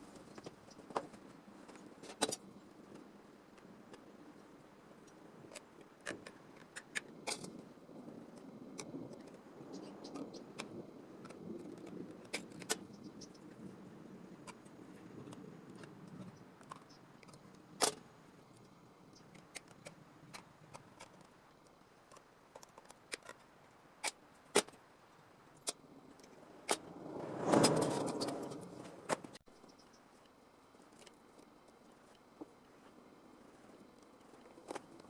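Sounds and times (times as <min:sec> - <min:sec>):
rushing noise: 0:25.9 - 0:29.4.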